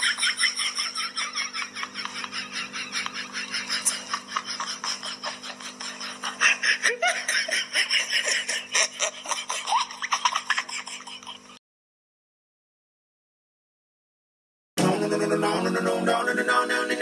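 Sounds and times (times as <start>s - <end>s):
person laughing hard: 0.0s - 11.6s.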